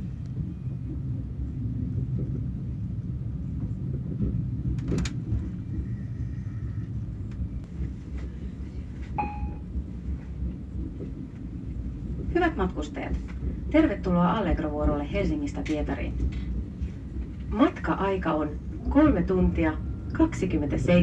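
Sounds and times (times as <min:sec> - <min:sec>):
train rumble inside carriage: 0:00.0 - 0:21.0
brief high tone: 0:09.2 - 0:09.6.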